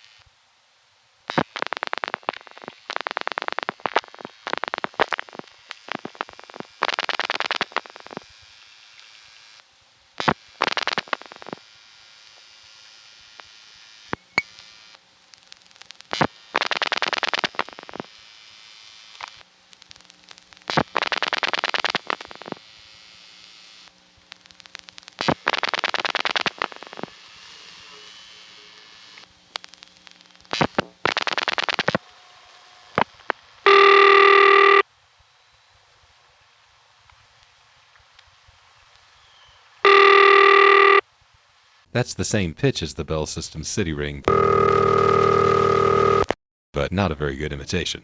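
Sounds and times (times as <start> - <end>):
quieter dialing pulses: 33.0 - 34.8, 39.9 - 41.0, 44.2 - 46.4
buzzy ringback tone: 33.6 - 34.8, 39.8 - 41.0, 44.2 - 46.3.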